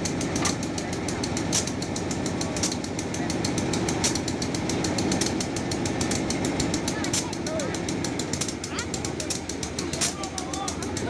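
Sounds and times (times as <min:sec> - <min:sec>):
train rumble: 0:00.0 - 0:11.0
train wheels clattering: 0:00.0 - 0:11.0.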